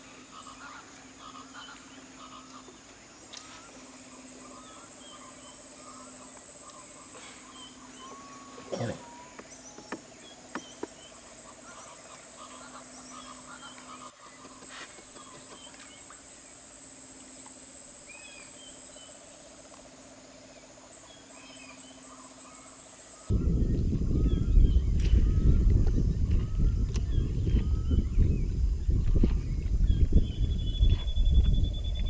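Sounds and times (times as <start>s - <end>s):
high insect drone: 0.0s - 32.0s
low pulsing trills: 16.0s - 32.0s.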